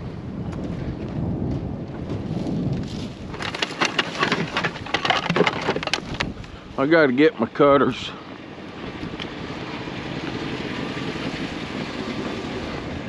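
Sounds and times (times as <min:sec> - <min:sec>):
wind rumbling on microphone: 0:00.0 - 0:13.0
sharp clicks and rattles: 0:03.3 - 0:06.5.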